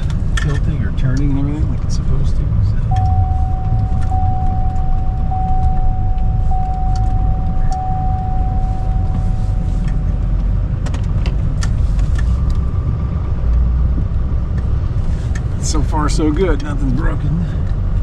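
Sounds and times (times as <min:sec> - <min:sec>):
pickup truck engine rumbling: 0:00.0 - 0:18.0
high whine: 0:02.9 - 0:10.8.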